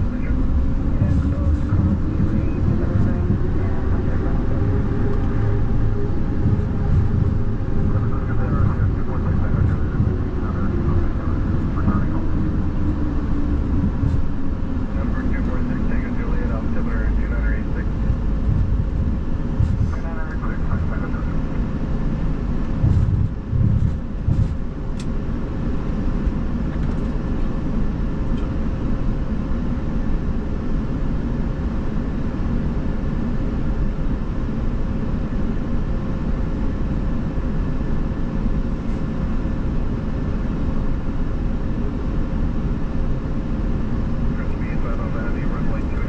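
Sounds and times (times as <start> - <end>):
cockpit air and engine rush: 0.0 - 46.0
low thumps: 0.4 - 14.9, 17.1 - 20.9, 22.7 - 24.8.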